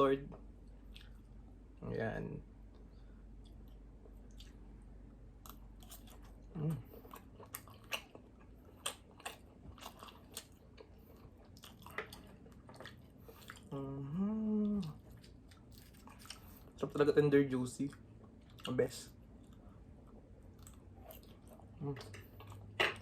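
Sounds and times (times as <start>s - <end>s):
chewing and biting food: 0.7s - 1.4s, 5.4s - 13.8s, 14.8s - 16.8s, 17.8s - 23.0s
person humming: 6.5s - 6.9s, 13.7s - 15.0s.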